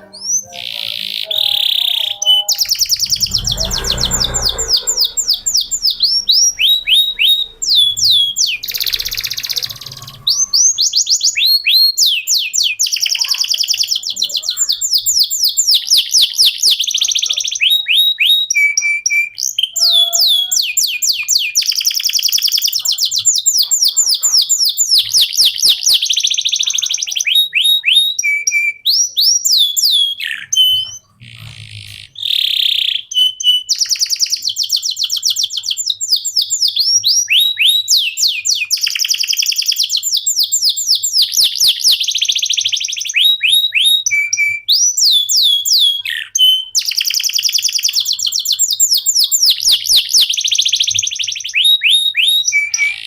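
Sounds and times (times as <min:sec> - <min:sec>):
canary singing trills: 0:00.0 - 0:53.0
harsh noisy bird note: 0:00.2 - 0:11.9.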